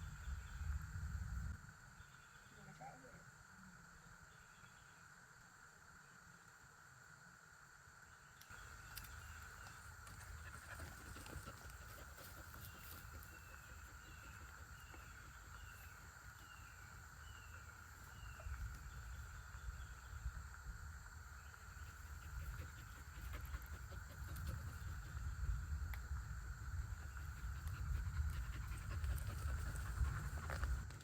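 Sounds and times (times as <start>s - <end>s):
insect drone: 0.0s - 31.0s.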